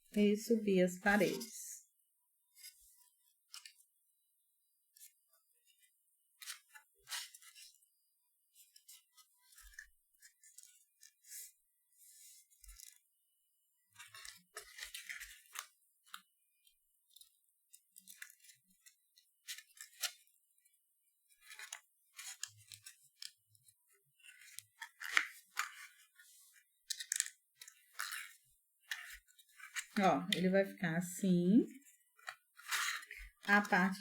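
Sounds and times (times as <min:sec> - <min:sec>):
paper rustling and crinkling: 0:13.9 - 0:16.3, 0:17.1 - 0:20.7, 0:21.3 - 0:30.0, 0:31.7 - 0:34.0.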